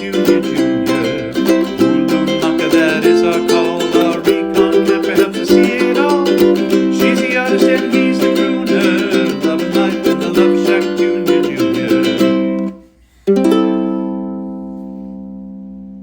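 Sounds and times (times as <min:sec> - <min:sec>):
strummed ukulele music: 0:00.0 - 0:16.0.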